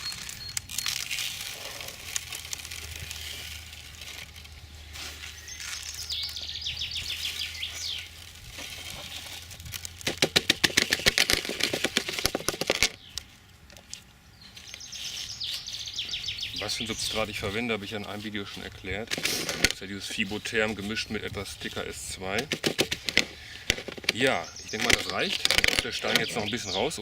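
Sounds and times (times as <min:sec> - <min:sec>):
birds chirping: 0:00.0 - 0:02.0, 0:04.2 - 0:09.6, 0:10.2 - 0:27.0
grains poured and scooped: 0:00.0 - 0:06.1, 0:07.1 - 0:10.0.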